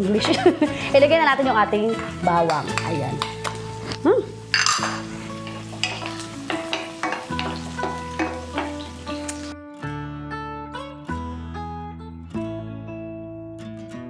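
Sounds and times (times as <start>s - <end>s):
garlic and onion sizzling in oil: 0.8s - 9.6s
wooden spoon scraping a pan: 4.6s - 9.4s.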